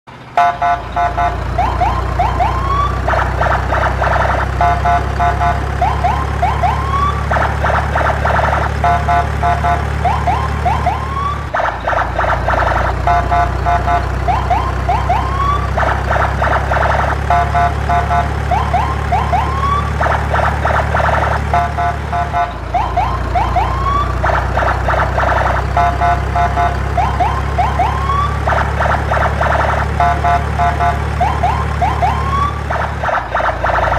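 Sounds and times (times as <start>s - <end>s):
fast pulsing beeps: 0.4s - 10.9s, 11.8s - 27.9s, 28.5s - 32.0s
rising siren whoops: 0.4s - 33.9s.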